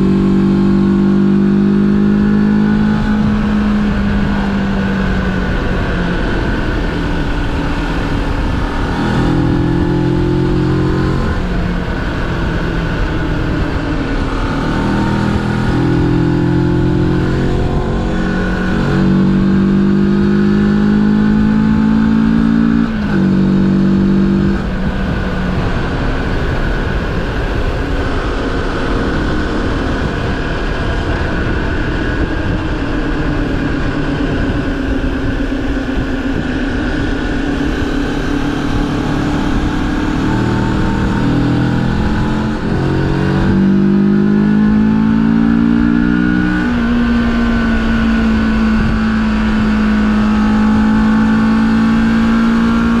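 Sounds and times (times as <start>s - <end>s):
motorcycle engine accelerating: 0.0s - 53.0s
wind and road noise: 0.0s - 53.0s.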